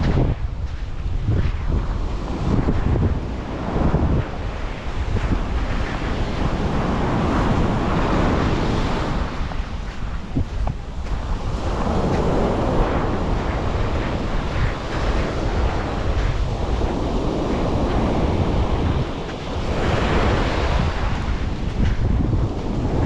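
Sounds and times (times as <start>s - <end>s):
sea waves washing onto beach: 0.0s - 23.0s
wind buffeting microphone: 0.0s - 23.0s.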